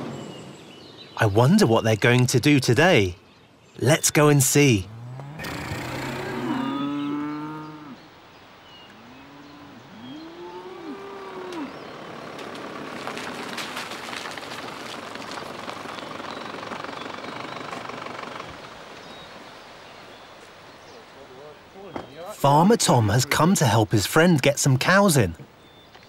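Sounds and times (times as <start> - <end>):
cattle mooing: 4.9 - 8.0, 9.2 - 12.3
rustling: 12.2 - 18.7.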